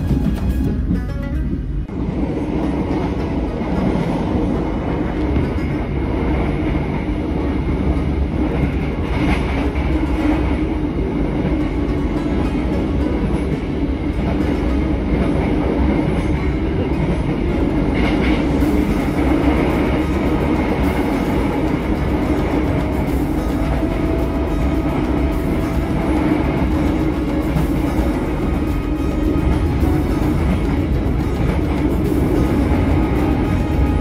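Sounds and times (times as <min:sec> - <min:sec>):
train wheels rolling on rails: 0:00.0 - 0:34.0.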